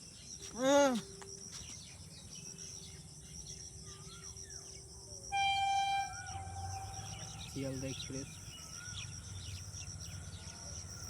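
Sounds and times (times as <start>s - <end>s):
faint bird chirps: 0.2s - 11.0s
high insect buzz: 5.3s - 7.8s.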